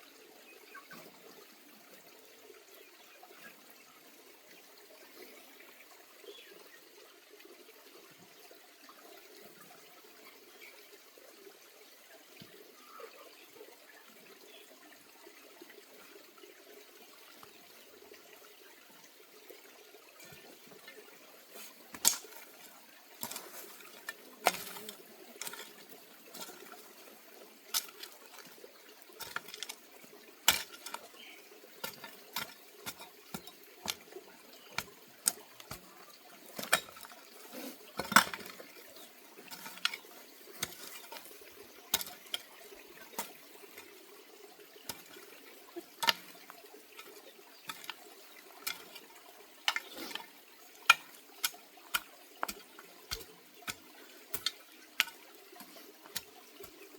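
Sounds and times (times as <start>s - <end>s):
water splashing and running: 15.7s - 56.9s.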